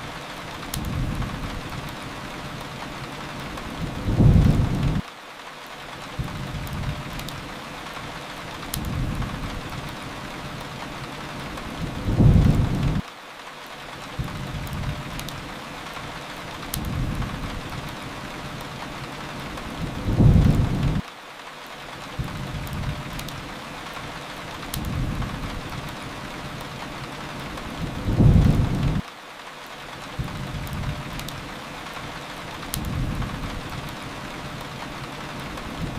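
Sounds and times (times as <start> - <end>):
fireplace crackles: 0.0 - 35.9
steady rain: 0.0 - 35.9
rolling thunder: 3.8 - 5.0, 11.8 - 13.0, 19.8 - 21.0, 27.8 - 29.0.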